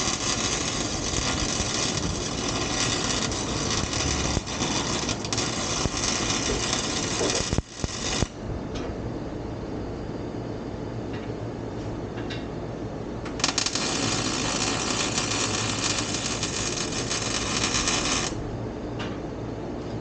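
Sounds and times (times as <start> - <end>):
welder arc crackling: 0.0 - 8.4, 13.4 - 18.4
steady low rumble: 0.0 - 10.6.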